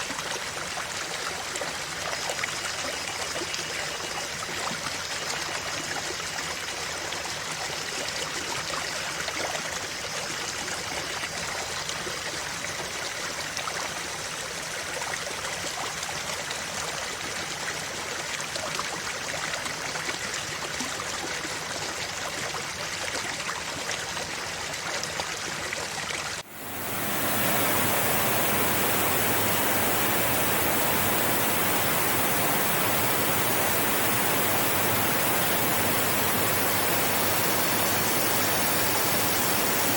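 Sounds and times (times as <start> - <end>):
rushing water: 26.4 - 39.9
stream water flowing: 26.4 - 39.9.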